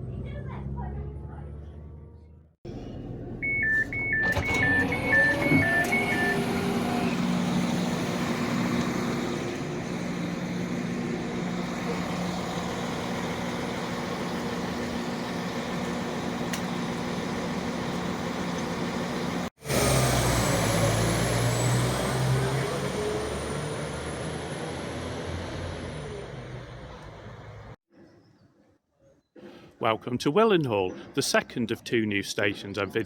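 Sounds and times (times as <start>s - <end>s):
track rumble: 0.0s - 27.8s
train engine hum: 2.7s - 19.5s, 21.5s - 27.8s
two-tone warning beep: 3.4s - 6.6s.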